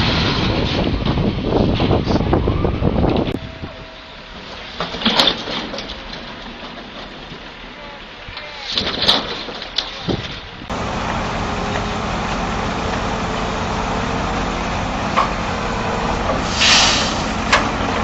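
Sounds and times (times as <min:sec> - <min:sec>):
heavy engine running: 0:10.5 - 0:18.0
short hiss: 0:16.4 - 0:17.4.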